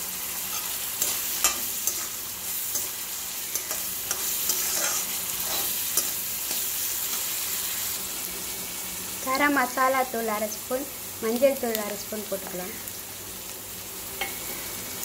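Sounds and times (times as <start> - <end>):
vegetables sizzling in hot oil: 0.0 - 15.0
metal spatula scraping a pan: 0.4 - 7.4.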